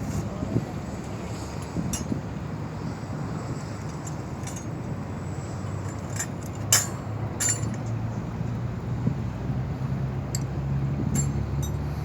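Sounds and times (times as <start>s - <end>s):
engine humming: 0.0s - 12.0s
sharp metallic clinks: 5.9s - 8.0s, 11.1s - 11.9s.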